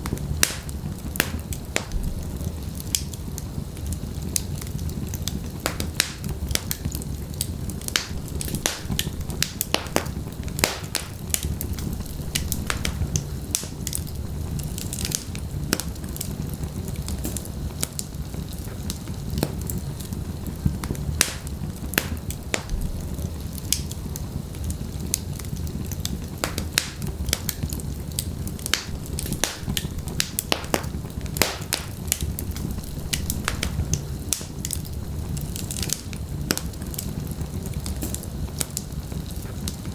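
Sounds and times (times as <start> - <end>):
logs crackling and popping: 0.0 - 39.9
low rumble of flame: 0.0 - 39.9.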